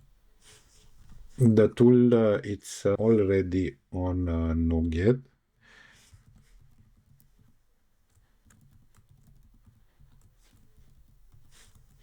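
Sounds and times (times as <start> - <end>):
keyboard typing: 6.2 - 12.0.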